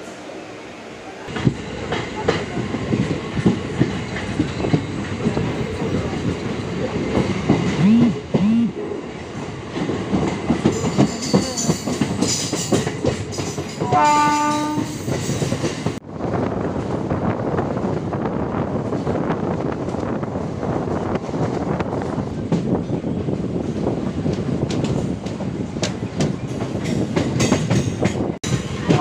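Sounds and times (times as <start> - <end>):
train wheels clattering over joints: 9.4 - 16.0, 23.6 - 29.0
train horn: 13.8 - 15.0.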